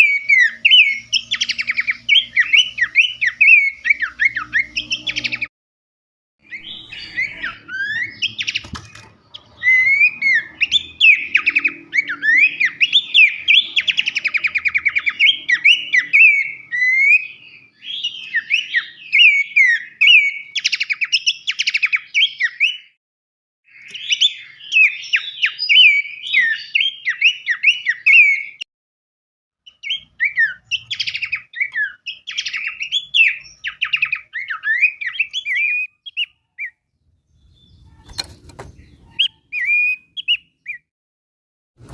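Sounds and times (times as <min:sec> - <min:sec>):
songbird chirps whistles and trills: 0:00.0 - 0:05.5, 0:06.4 - 0:23.0, 0:23.7 - 0:28.6, 0:29.7 - 0:40.9.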